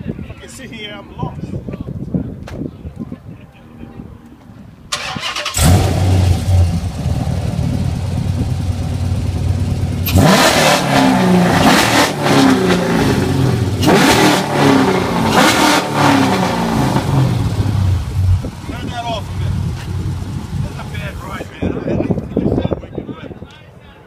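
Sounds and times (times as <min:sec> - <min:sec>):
car exhaust idling and revving: 0:05.6 - 0:21.4.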